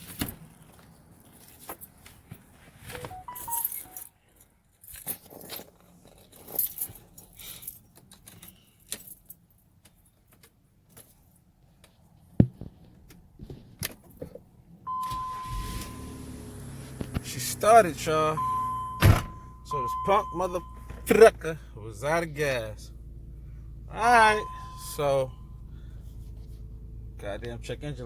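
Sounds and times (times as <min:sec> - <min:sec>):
short rising beeps: 0:03.0 - 0:04.0, 0:14.9 - 0:16.8, 0:18.3 - 0:21.1, 0:24.2 - 0:25.7
car keys jangling: 0:03.0 - 0:11.1, 0:14.9 - 0:21.5, 0:23.0 - 0:28.0
loud thump: 0:19.0 - 0:19.4.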